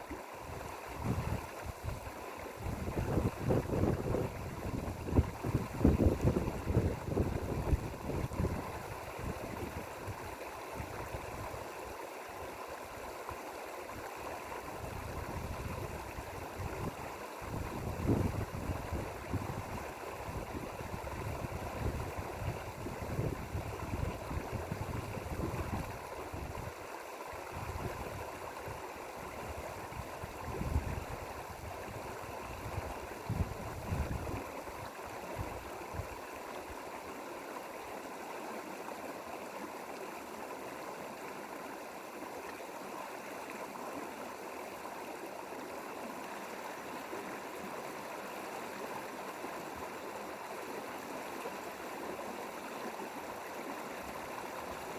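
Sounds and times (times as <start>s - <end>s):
stream flowing over rocks: 0.0s - 54.9s
wind rumble on microphone: 0.4s - 11.8s, 13.9s - 26.8s, 27.4s - 36.8s.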